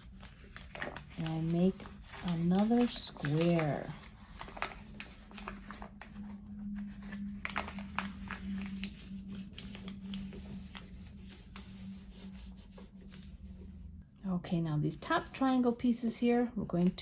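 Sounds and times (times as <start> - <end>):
paper crinkling and rustling: 0.0 - 13.4
low steady hum: 0.0 - 17.0.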